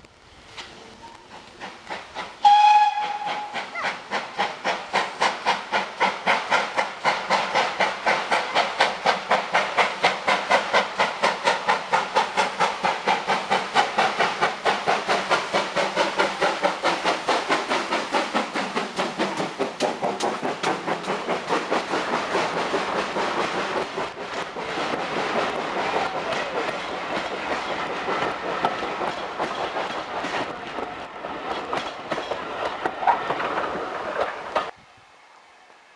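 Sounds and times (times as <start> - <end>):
steam locomotive chuffing: 0.5 - 34.8
steam locomotive whistle: 2.4 - 3.9.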